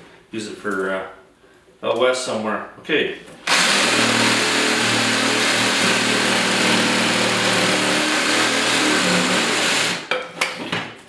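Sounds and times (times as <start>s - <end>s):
reciprocating saw cutting wood: 3.5s - 10.1s.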